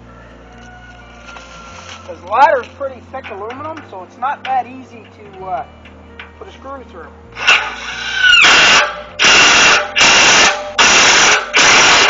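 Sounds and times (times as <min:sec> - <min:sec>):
power drill whirring: 0:07.4 - 0:12.0.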